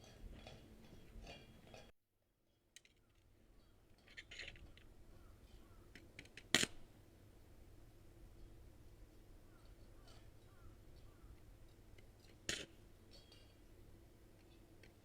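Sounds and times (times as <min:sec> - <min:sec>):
metal parts clinking: 0:04.0 - 0:04.9.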